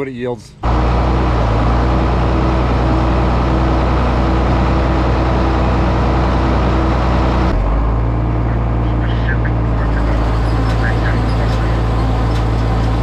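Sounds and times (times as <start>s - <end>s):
tractor engine running: 0.6s - 13.0s.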